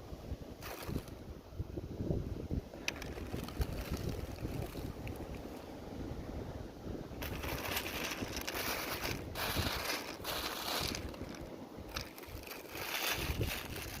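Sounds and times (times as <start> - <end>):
wind noise: 0.0 - 14.0
crunching and rustling: 0.6 - 1.2, 2.8 - 5.6, 7.2 - 14.0.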